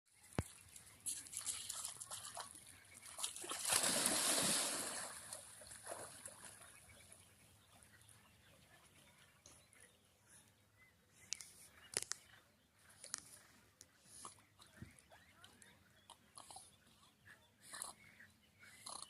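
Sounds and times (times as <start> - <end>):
dog splashing in water: 1.0 - 6.7.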